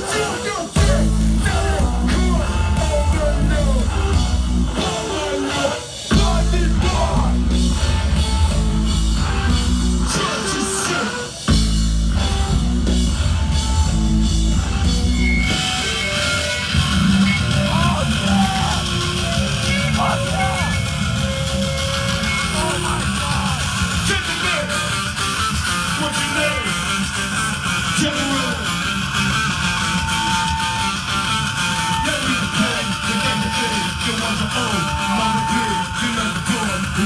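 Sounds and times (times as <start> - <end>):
shouted vocals: 0.0 - 7.6, 10.1 - 11.5, 16.8 - 25.0, 27.8 - 37.0
punk band playing loud: 0.0 - 37.0.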